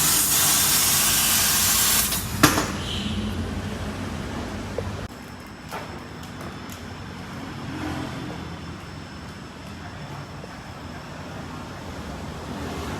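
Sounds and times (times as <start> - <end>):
laser cutter hiss: 0.0 - 2.4.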